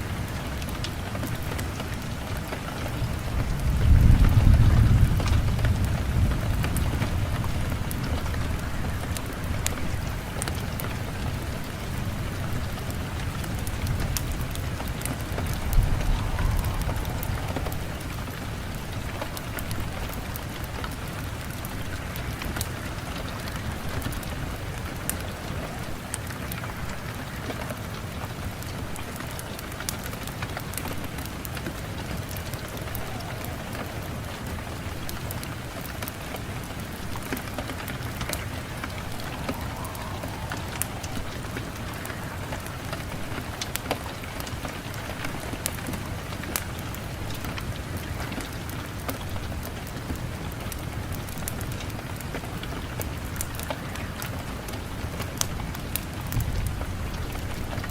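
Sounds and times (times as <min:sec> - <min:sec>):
steady rain falling: 0:00.0 - 0:57.9
low rumble: 0:13.7 - 0:20.4, 0:38.0 - 0:43.8.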